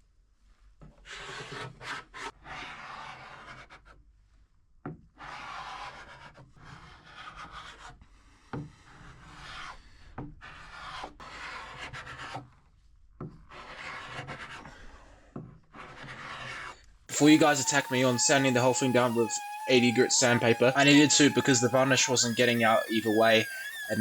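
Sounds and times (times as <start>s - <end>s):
hand tool rubbing wood: 17.1s - 24.0s.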